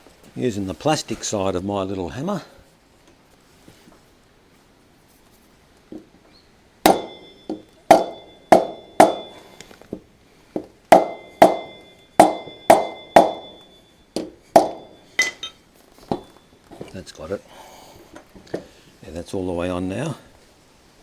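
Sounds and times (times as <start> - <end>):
hammer taps with metallic ring: 6.9 - 9.8, 10.6 - 16.5.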